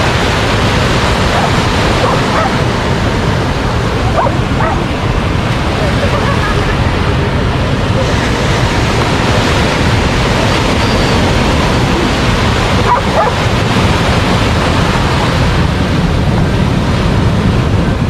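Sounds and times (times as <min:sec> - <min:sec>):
ocean surf rushing: 0:00.0 - 0:18.0
dog barking: 0:01.3 - 0:02.6, 0:04.1 - 0:04.9, 0:12.8 - 0:13.5.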